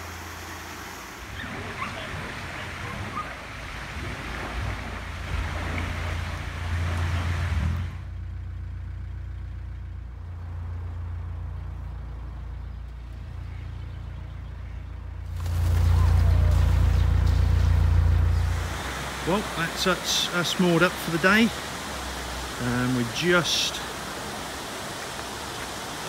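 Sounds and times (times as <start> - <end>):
diesel engine humming: 0.0 - 26.0
broad rushing noise: 15.2 - 26.0.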